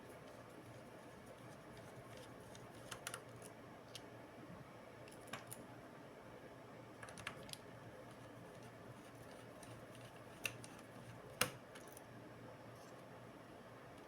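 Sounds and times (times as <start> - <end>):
faint room hum: 0.0 - 14.0.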